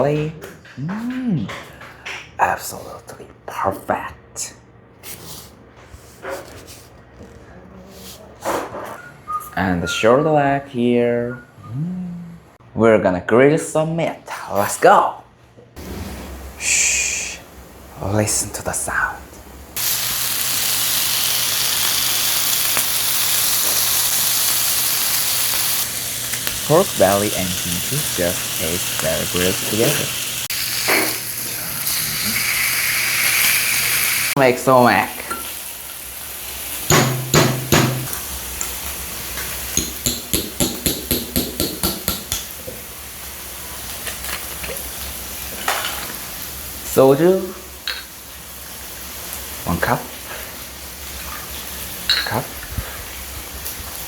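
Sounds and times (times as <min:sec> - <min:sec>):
pork sizzling on a grill: 0:15.8 - 0:54.0
heavy knocks: 0:36.9 - 0:38.1
sharp taps: 0:39.8 - 0:42.5.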